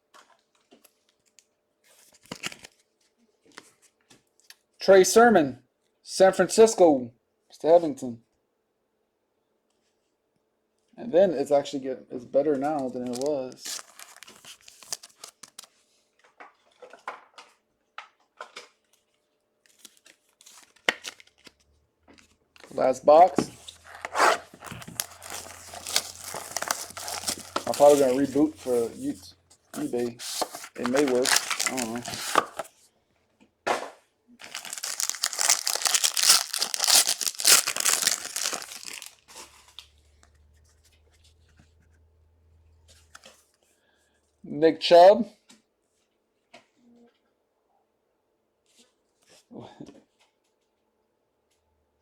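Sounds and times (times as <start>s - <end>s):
trading cards being handled: 12.7s - 15.7s, 19.7s - 32.7s, 34.4s - 42.0s
plastic wrapping ripping: 13.1s - 15.7s, 23.6s - 29.1s, 29.8s - 32.7s, 34.4s - 39.8s.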